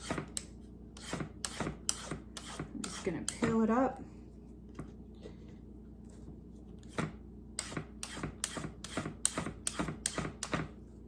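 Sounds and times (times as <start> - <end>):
vegetable peeler scraping carrot: 1.0 - 3.4.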